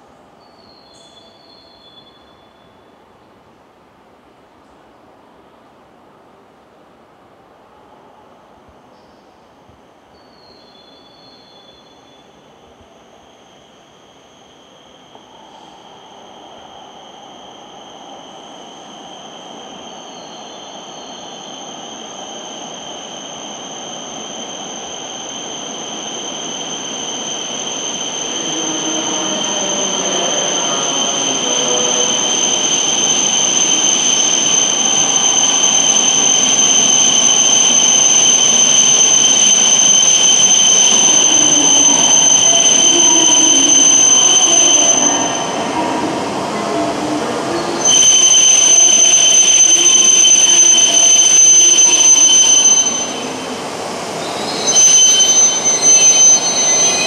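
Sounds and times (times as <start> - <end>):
high-pitched whine: 14.2 - 57.0
train running noise: 15.0 - 57.0.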